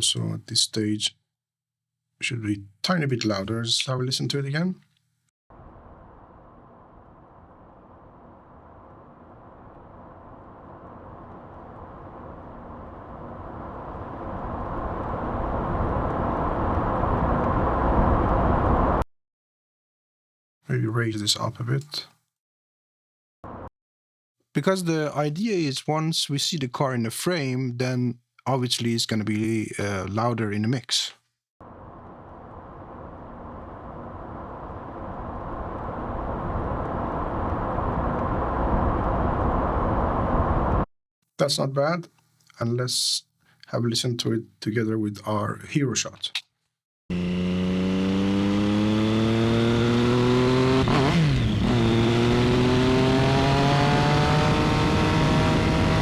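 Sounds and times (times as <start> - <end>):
car approaching: 31.6 - 40.9, 47.1 - 56.0.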